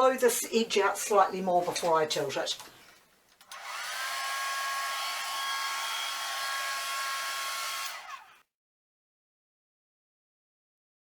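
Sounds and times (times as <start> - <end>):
hair dryer running: 3.4 - 8.4.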